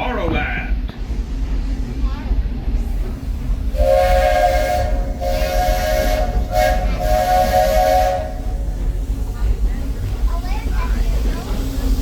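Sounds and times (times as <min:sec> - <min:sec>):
moving train rumble: 0:00.0 - 0:12.0
steam locomotive whistle blasts: 0:03.8 - 0:08.7.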